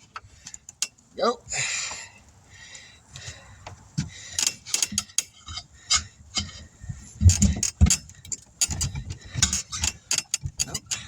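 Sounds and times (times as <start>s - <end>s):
heavy thumps: 3.2s - 11.0s
metallic clinks and knocks: 4.4s - 11.0s.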